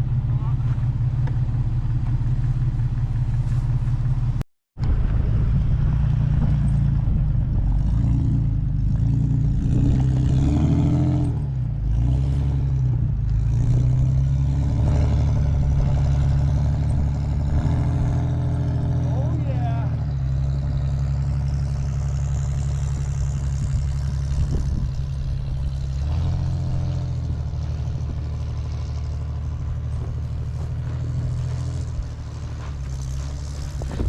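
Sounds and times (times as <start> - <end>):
vehicle engine under load: 0.0 - 34.0
tire chains in snow: 7.7 - 34.0.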